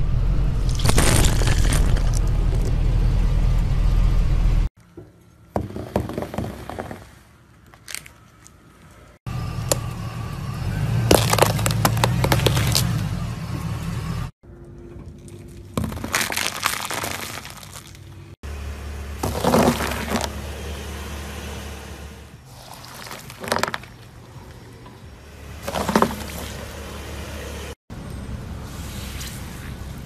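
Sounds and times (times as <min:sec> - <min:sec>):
low steady hum: 0:00.0 - 0:05.5
car tyre crushing objects: 0:00.6 - 0:02.9, 0:05.4 - 0:08.7, 0:11.0 - 0:13.2, 0:15.0 - 0:18.4, 0:19.1 - 0:20.6, 0:22.4 - 0:27.6
foam brick crunching: 0:00.7 - 0:02.7, 0:05.6 - 0:07.2, 0:11.1 - 0:13.0, 0:15.1 - 0:18.2, 0:19.2 - 0:20.3, 0:22.5 - 0:24.0, 0:25.6 - 0:26.7.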